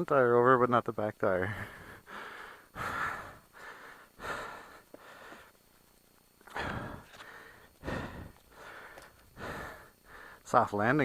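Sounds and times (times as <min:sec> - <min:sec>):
person breathing hard: 0:01.5 - 0:05.6, 0:06.5 - 0:10.4.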